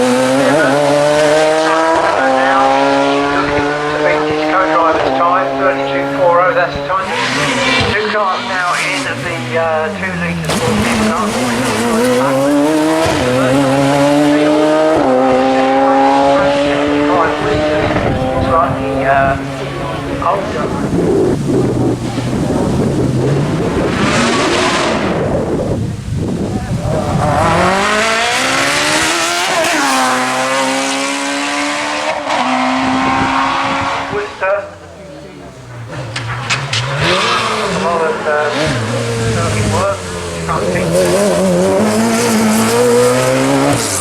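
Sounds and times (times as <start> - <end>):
sports car engine accelerating: 0.0 - 44.0.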